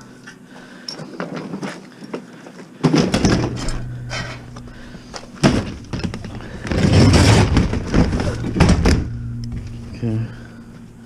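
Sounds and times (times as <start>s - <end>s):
sheet metal thump and clatter: 2.9s - 9.7s.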